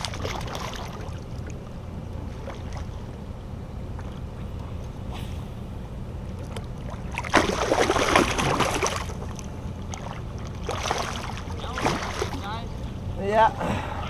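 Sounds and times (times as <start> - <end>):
fish splashing at water surface: 0.0 - 1.5, 6.4 - 12.5
low rumble of wind and water: 0.0 - 14.0.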